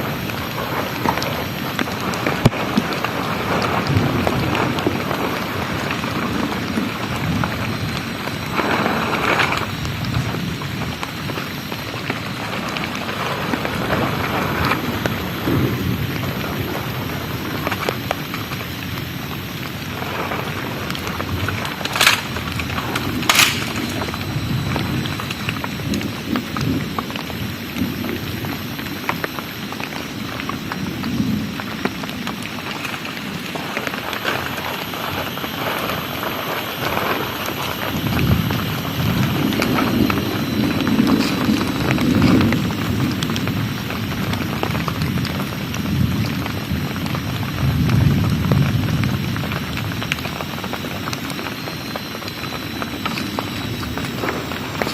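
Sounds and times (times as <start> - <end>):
heavy rain pouring: 0.0 - 54.9
thunder rumbling: 0.0 - 54.9
sharp clicks: 21.8 - 24.2.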